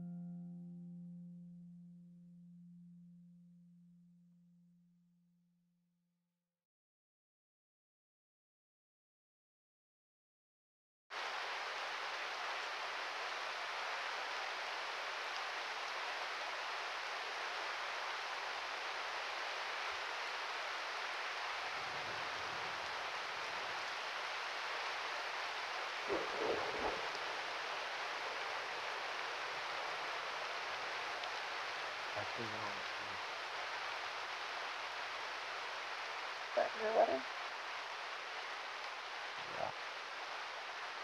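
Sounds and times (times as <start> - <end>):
steady rain falling: 11.1 - 41.0.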